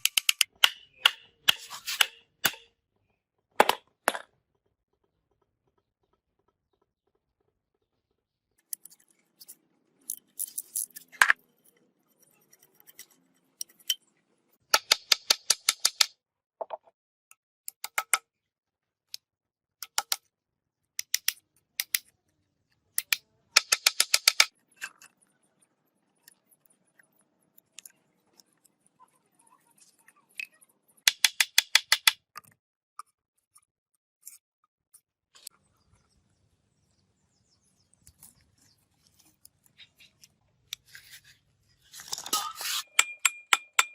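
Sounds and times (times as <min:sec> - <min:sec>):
rapid sharp clicks of hand tools: 0:14.8 - 0:16.1, 0:23.0 - 0:24.5, 0:31.1 - 0:32.2.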